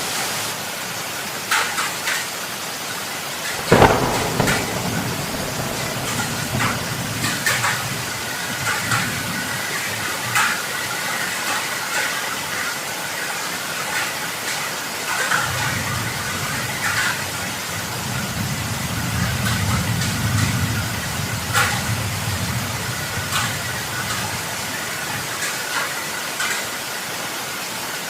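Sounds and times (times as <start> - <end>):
heavy rain falling: 0.0 - 28.0
sharp drips and splashes: 0.0 - 28.0
low rumble: 3.7 - 8.0.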